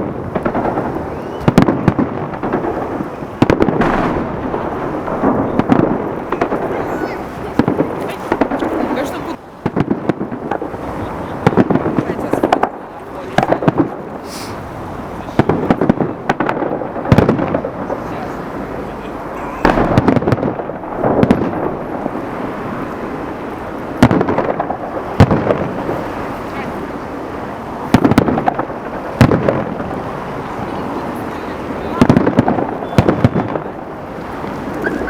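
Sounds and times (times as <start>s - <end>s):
fireworks bangs: 0.0s - 35.0s.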